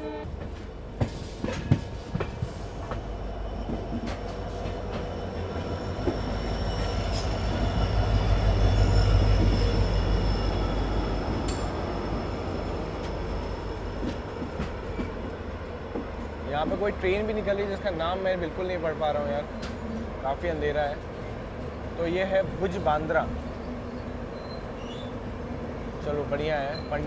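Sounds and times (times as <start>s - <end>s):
train wheels rumbling on rails: 0.2s - 27.0s
faint wheel squeal: 23.8s - 25.2s, 26.6s - 27.0s.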